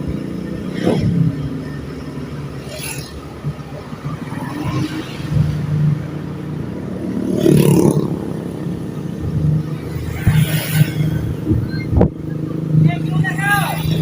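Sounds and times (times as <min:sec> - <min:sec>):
road rushing noise: 0:00.0 - 0:14.0.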